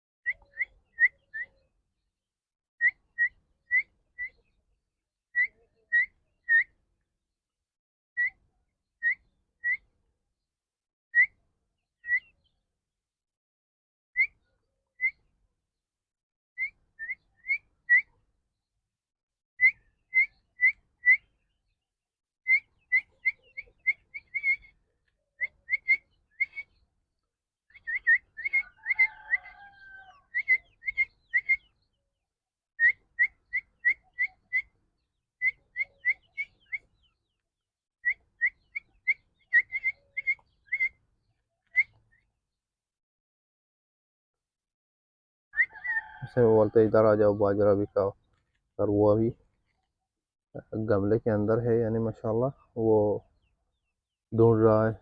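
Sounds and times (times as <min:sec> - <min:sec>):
partridge chick peeping: 0:00.3 - 0:02.1, 0:02.8 - 0:04.8, 0:05.4 - 0:06.8, 0:08.2 - 0:10.0, 0:11.2 - 0:12.7, 0:16.6 - 0:18.7, 0:19.6 - 0:21.8, 0:22.4 - 0:37.4, 0:38.0 - 0:42.4, 0:45.6 - 0:49.9, 0:50.6 - 0:55.0.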